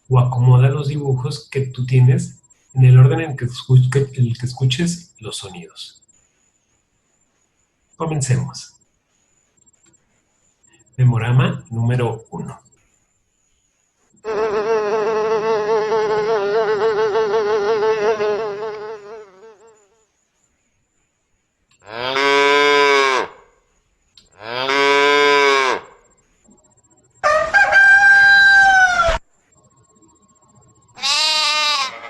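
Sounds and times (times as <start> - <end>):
mosquito whining buzz: 14.2 - 20.2
cow mooing: 21.8 - 23.4, 24.4 - 25.9
hen calling: 31.0 - 32.0.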